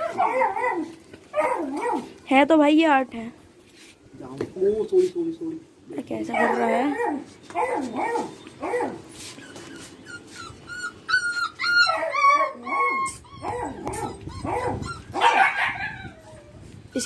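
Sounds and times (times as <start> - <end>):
puppies whining and yipping: 0.0 - 2.1, 6.4 - 17.0.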